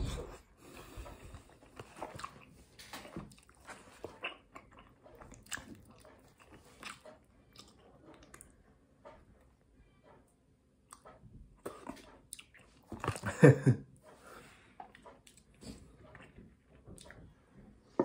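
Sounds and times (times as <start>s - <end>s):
person chewing: 0.0s - 8.5s, 10.9s - 13.5s, 14.5s - 17.2s.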